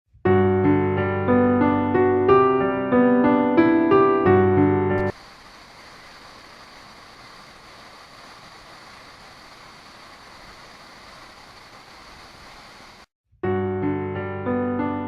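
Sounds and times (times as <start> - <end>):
waterfall rushing: 5.0 - 13.0.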